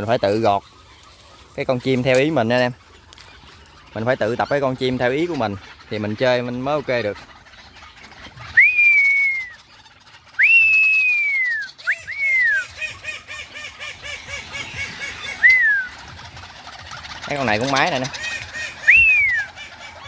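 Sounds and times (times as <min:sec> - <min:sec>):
caged birds whistling: 0:00.0 - 0:20.0
fast run of short bird notes: 0:07.5 - 0:20.0.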